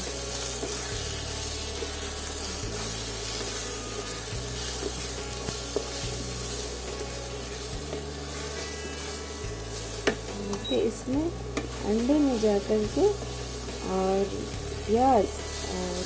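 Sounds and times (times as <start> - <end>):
food sizzling in a frying pan: 0.0 - 16.0
spatula tapping a pan: 10.0 - 10.7, 11.5 - 11.8.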